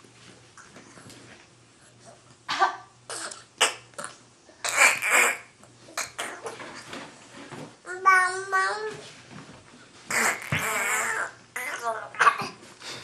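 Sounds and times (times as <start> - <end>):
child coughing: 12.1 - 12.6.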